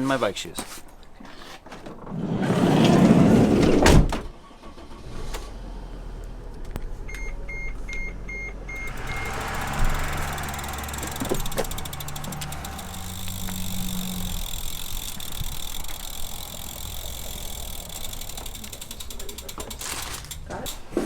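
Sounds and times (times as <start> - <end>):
road noise: 5.0 - 21.0
car engine humming: 5.6 - 20.7
electronic warning chime: 7.5 - 9.7
car door shutting: 8.7 - 12.5.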